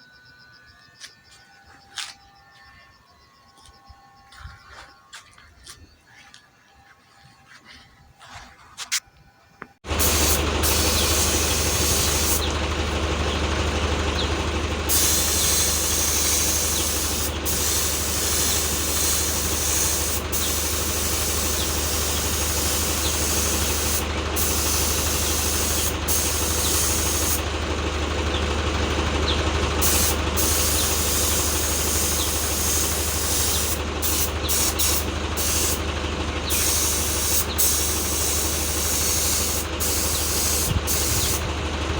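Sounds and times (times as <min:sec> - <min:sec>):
machine humming and hissing: 0:09.8 - 0:41.9.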